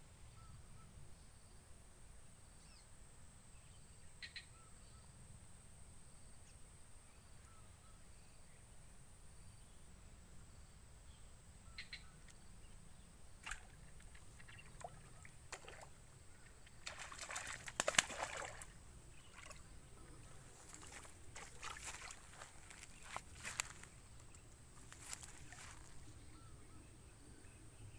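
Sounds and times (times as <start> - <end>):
water splashing and sloshing: 13.4 - 26.1.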